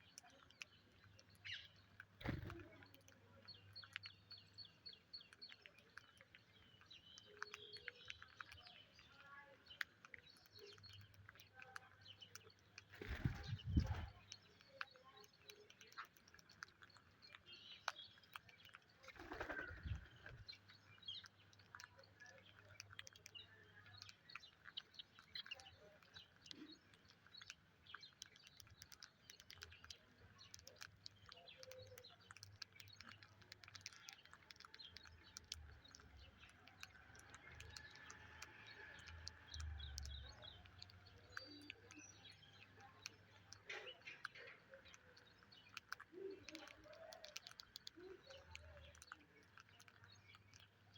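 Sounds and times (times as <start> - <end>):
small scattered clicks: 0.0 - 50.9.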